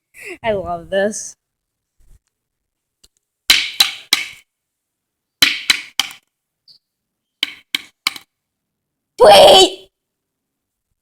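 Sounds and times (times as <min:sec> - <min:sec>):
sharp knocks on hard surface: 0:03.5 - 0:04.4, 0:05.4 - 0:06.2, 0:07.4 - 0:08.3.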